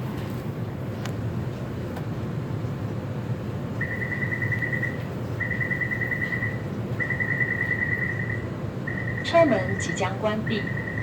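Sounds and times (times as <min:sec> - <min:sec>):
low rumble of stationary train: 0:00.0 - 0:11.0
rapid high door warning beeps: 0:03.8 - 0:11.0.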